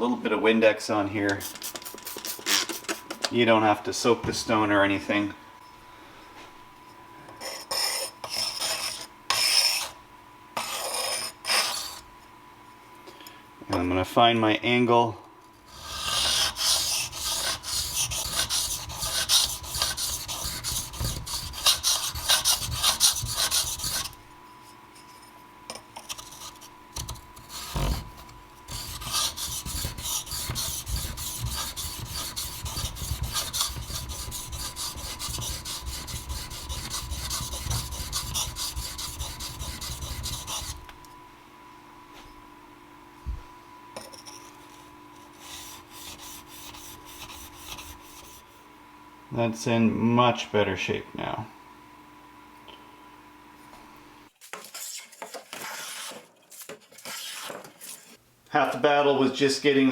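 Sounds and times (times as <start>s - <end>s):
steel scraping on sharpening stone: 7.4s - 10.0s.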